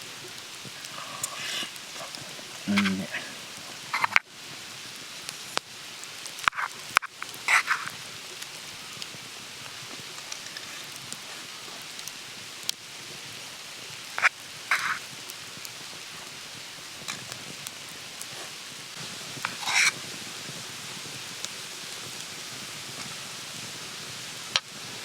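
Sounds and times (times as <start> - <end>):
steady background hiss: 0.0 - 25.0
scraping and slurping: 0.8 - 4.2, 7.5 - 8.0, 14.2 - 15.0, 19.4 - 20.0.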